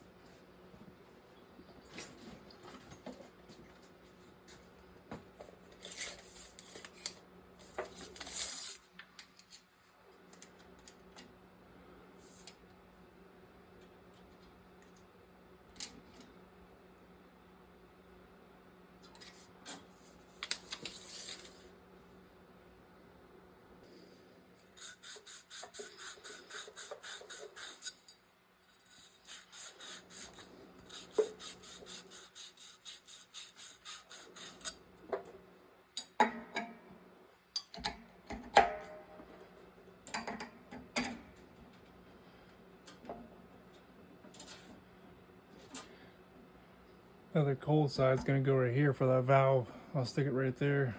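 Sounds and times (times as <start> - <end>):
hand tool rasping: 24.6 - 34.8.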